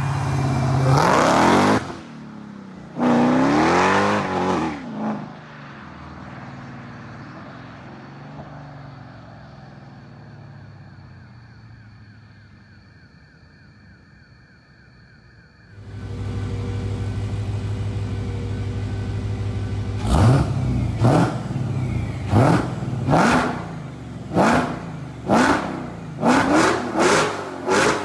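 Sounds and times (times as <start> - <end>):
car engine revving: 0.0 - 2.2, 2.8 - 5.3, 15.8 - 28.0.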